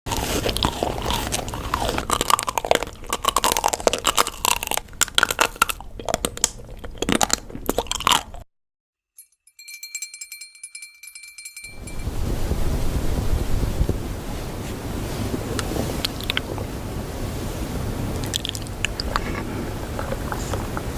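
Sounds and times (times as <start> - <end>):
dense crunching and crackling: 0.1 - 8.4, 18.2 - 20.9
rushing noise: 11.7 - 20.9.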